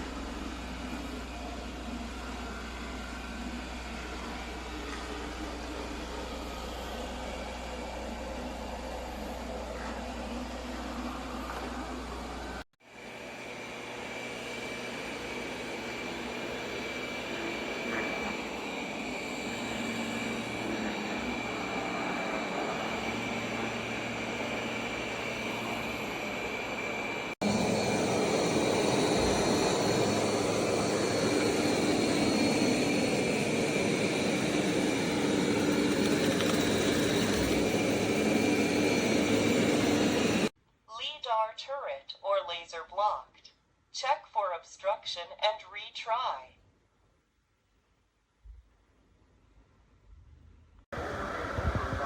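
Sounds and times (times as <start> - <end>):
robot vacuum running: 12.9 - 40.5.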